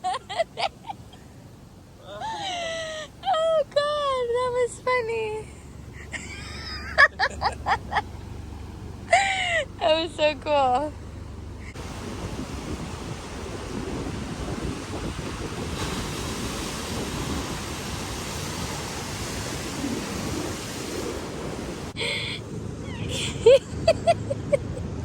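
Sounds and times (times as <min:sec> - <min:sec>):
surf washing: 0:00.0 - 0:25.0
wind buffeting microphone: 0:11.3 - 0:22.0.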